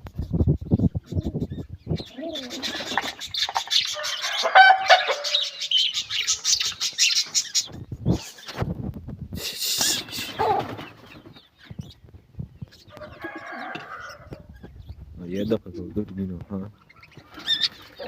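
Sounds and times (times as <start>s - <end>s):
pigeons chirping and clicking: 0.0s - 18.0s
low gliding bird calls: 1.0s - 8.6s.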